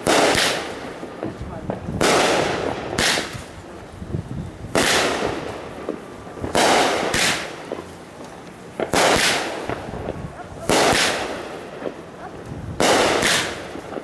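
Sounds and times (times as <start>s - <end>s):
fireworks bangs: 0.0s - 14.0s.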